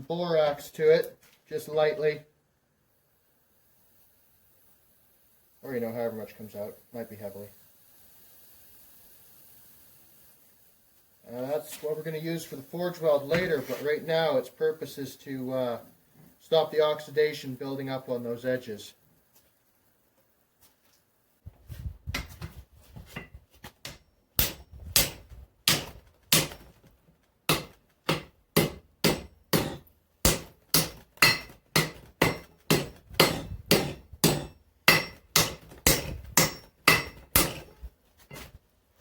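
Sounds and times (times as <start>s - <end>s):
hammer striking hot steel: 23.8s - 26.8s, 27.5s - 37.8s.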